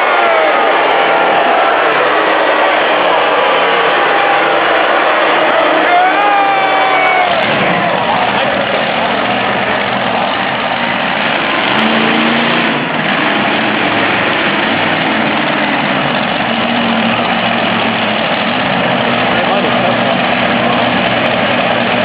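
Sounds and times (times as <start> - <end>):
truck engine running loud: 0.0 - 22.0.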